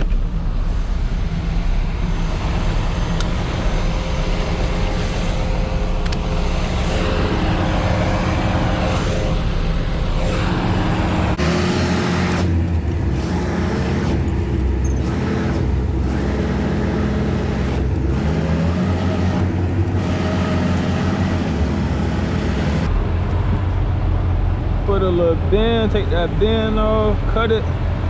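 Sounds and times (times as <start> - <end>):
diesel truck engine running: 2.4 - 23.0.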